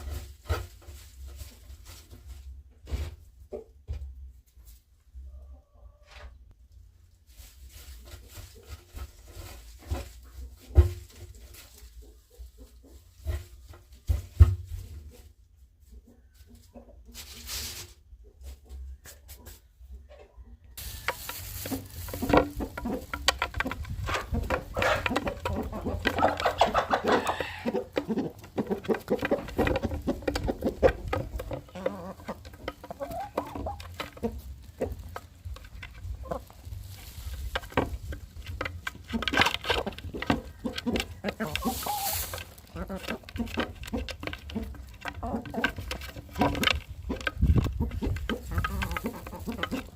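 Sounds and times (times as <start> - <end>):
chickens clucking: 5.1 - 6.6, 7.7 - 49.9
chickens pecking taps: 20.8 - 49.9.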